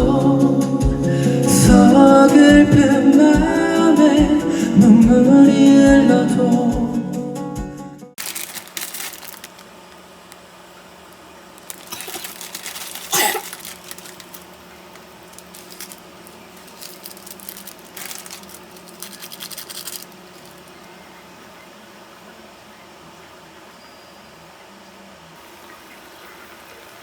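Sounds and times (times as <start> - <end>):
scratching and rustling handling: 8.2 - 10.5, 11.1 - 21.2.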